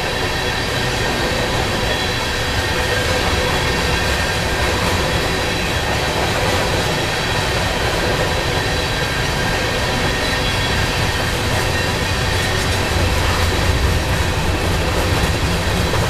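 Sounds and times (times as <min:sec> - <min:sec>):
faint high wheel squeal: 0:00.0 - 0:06.2, 0:07.0 - 0:13.6
train wheels rumbling on track: 0:00.0 - 0:16.0.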